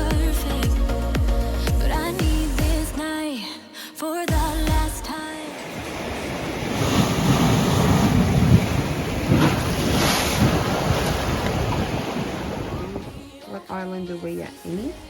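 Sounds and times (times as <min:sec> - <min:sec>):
sea water rushing: 0:05.3 - 0:13.4
wind buffeting microphone: 0:05.8 - 0:13.4.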